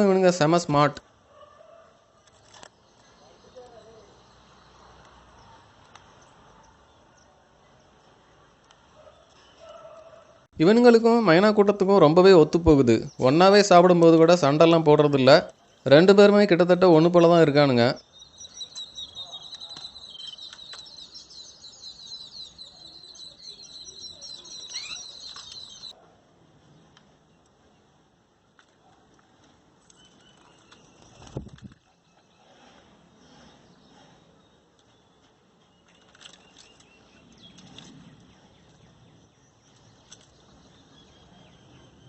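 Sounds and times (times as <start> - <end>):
faint bird chirps and calls: 16.9 - 26.0.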